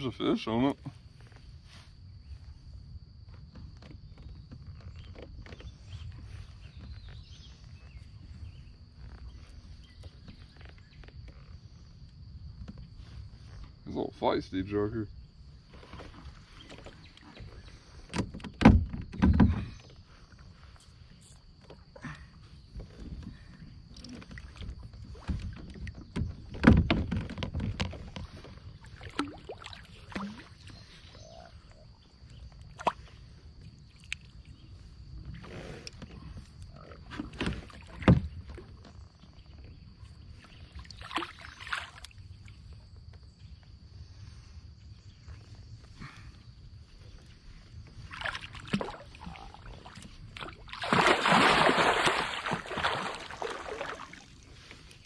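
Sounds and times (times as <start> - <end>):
knocks against kayak hull: 18.1 - 19.8, 25.2 - 28.4
light water splashing: 27.3 - 31.2, 32.6 - 34.6, 40.4 - 42.6, 47.9 - 55.0.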